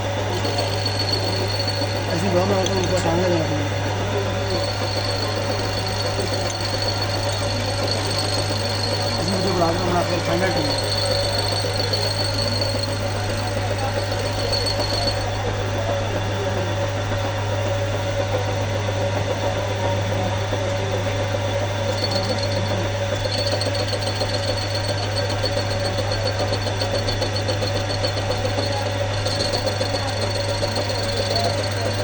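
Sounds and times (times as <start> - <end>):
thin high whine: 0.0 - 15.3
workshop machine humming: 0.0 - 32.0.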